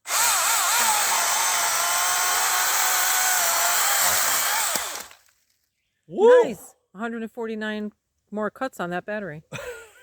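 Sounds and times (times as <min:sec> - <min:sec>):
electric chainsaw cutting wood: 0:00.0 - 0:05.3.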